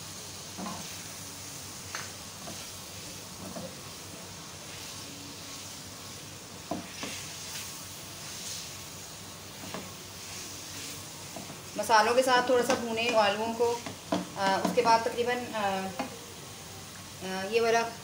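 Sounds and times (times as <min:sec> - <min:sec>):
potatoes sizzling in a pan: 0:00.0 - 0:18.0
spatula scraping and tapping pan: 0:00.6 - 0:01.0, 0:01.9 - 0:02.7, 0:03.4 - 0:03.8, 0:06.6 - 0:07.7, 0:09.6 - 0:11.6, 0:12.6 - 0:15.0, 0:15.9 - 0:16.2.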